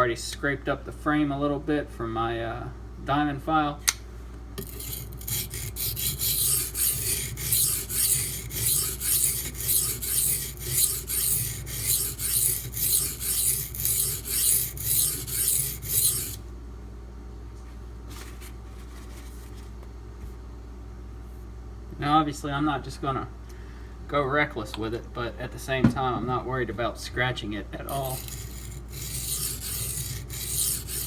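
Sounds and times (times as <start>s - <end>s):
knife scraping on sharpening stone: 4.6s - 16.4s, 27.9s - 31.0s.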